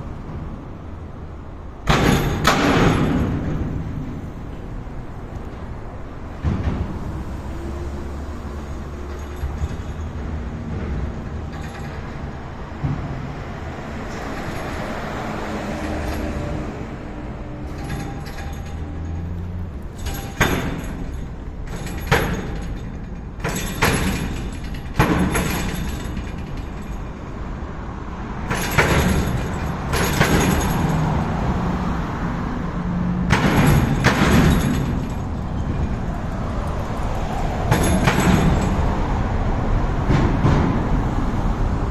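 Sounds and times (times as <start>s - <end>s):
road traffic on bridge: 0.0s - 41.9s
sharp knocks from bridge: 1.8s - 4.3s, 6.3s - 7.4s, 33.2s - 36.2s, 37.3s - 39.1s, 39.8s - 41.6s.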